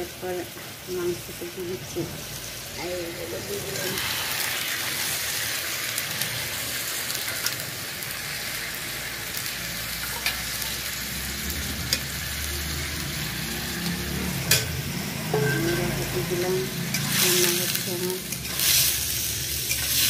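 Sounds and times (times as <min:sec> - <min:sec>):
chicken sizzling in hot oil: 0:00.0 - 0:20.0.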